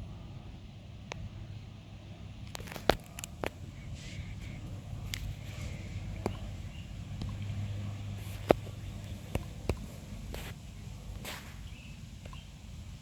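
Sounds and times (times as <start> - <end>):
steady low hum: 0.0 - 13.0
brief rustles: 2.5 - 12.4
sharp handling clicks: 2.5 - 12.5.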